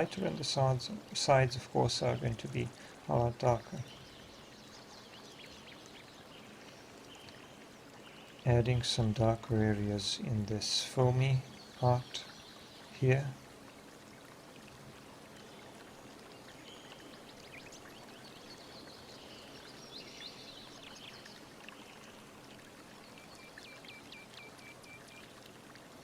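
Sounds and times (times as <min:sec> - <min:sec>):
birds chirping: 0:00.0 - 0:13.4, 0:22.9 - 0:25.4.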